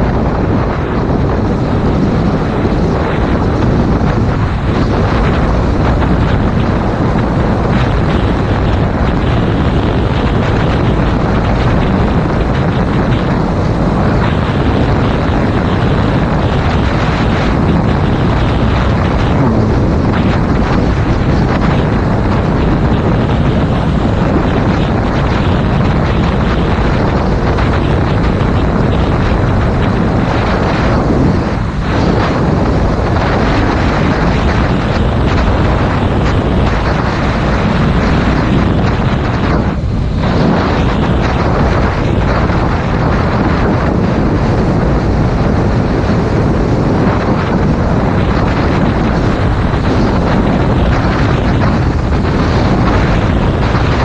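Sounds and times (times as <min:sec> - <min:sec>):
wind noise on microphone: 0:00.0 - 0:54.0
motorcycle engine: 0:00.8 - 0:33.0.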